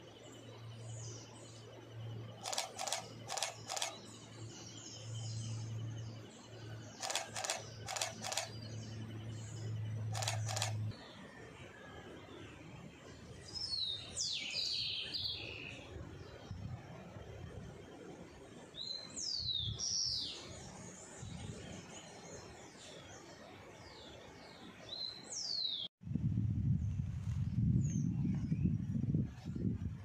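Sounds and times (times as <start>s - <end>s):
low rumbling noise: 26.0s - 30.0s.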